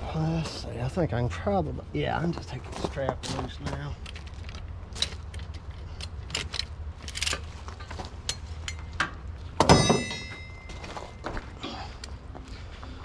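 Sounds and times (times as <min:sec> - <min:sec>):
metallic clang ringing: 0:09.6 - 0:11.2.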